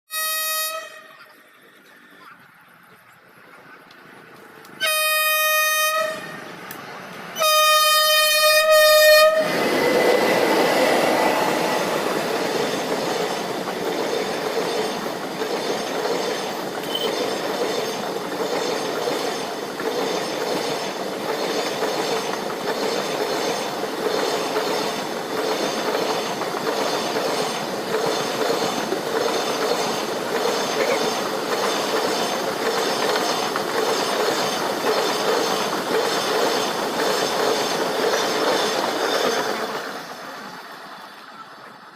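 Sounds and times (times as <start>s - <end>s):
train horn blasts: 0.1s - 1.2s, 4.8s - 6.5s, 7.4s - 9.5s
train running on rails: 0.1s - 41.9s.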